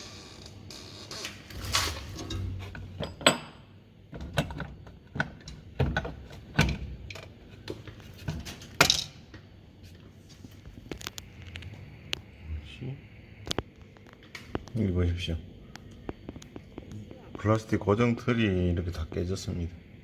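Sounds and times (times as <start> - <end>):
metal parts and tools clanking: 1.5 - 3.6.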